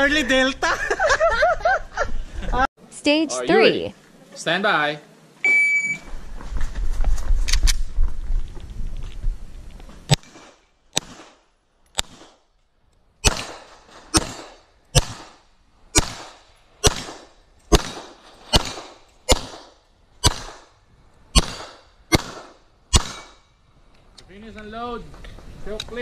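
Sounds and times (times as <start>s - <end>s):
pistol shots with echo: 13.2s - 15.4s, 16.0s - 20.7s, 21.4s - 23.4s.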